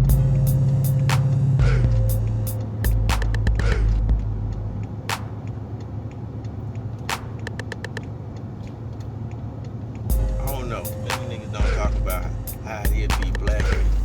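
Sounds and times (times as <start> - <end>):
car engine droning: 0.0 - 14.0
sharp clicks: 2.5 - 10.2.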